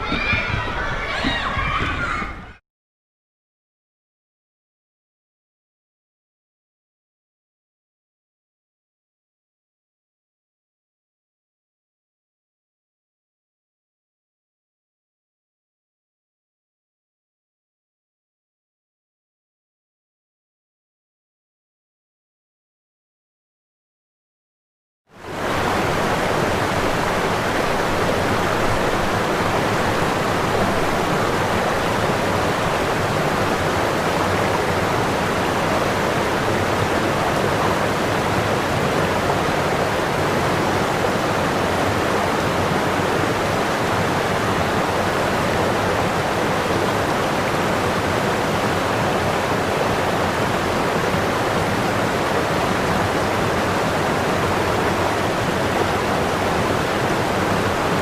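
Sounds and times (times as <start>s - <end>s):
steady rushing noise: 25.1s - 58.0s.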